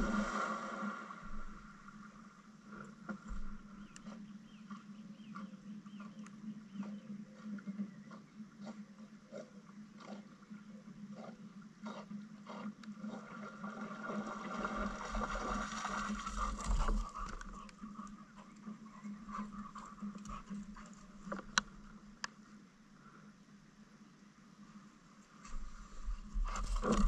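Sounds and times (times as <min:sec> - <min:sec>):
paddle splashing in water: 0:00.0 - 0:02.2, 0:13.4 - 0:17.3.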